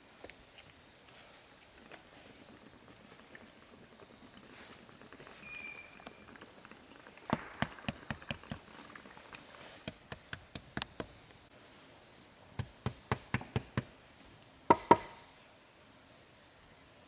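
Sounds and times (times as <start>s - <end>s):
sharp knocks: 7.3s - 8.7s, 9.8s - 11.2s, 12.6s - 13.9s, 14.7s - 15.2s.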